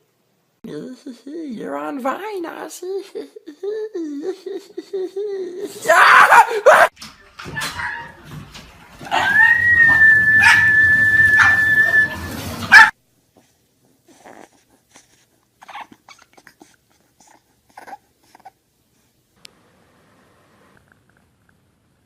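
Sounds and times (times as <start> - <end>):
dog whining: 9.1 - 12.9, 14.1 - 18.6.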